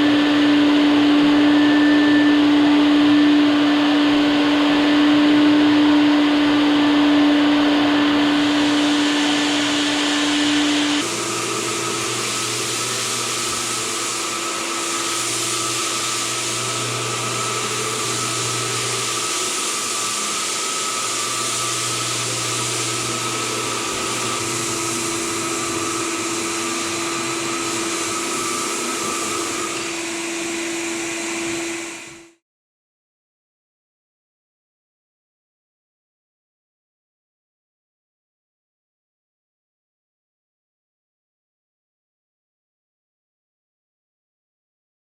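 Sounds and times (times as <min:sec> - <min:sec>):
floor buffer motor drone: 0:00.0 - 0:32.4.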